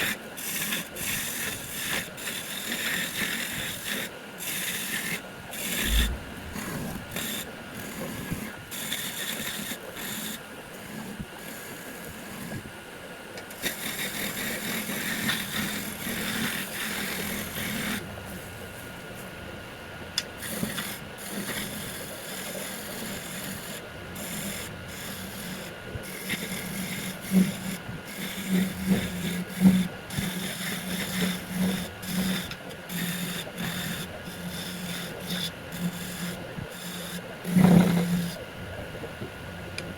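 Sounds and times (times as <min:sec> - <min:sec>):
low hum: 0:05.8 - 0:07.2
tool scraping wood on lathe: 0:20.4 - 0:38.4.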